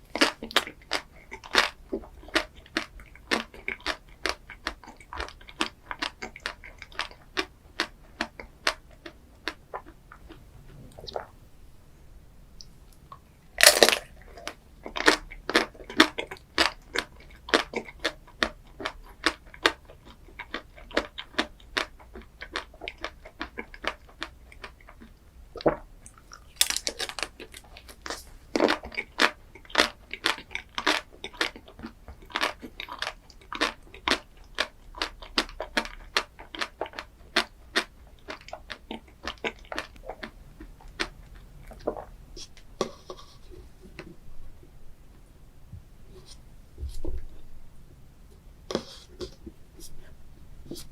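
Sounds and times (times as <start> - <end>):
crunchy chewing: 0.0 - 10.4, 13.1 - 44.1
bite into crunchy dessert: 13.6 - 42.1.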